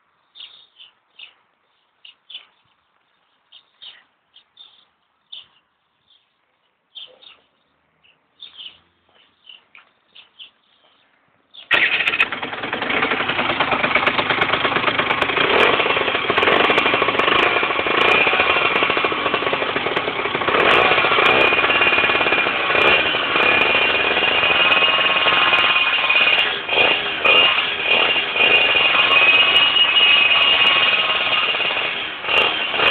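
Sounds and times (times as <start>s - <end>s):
two-stroke motorcycle engine revving: 11.7s - 32.9s.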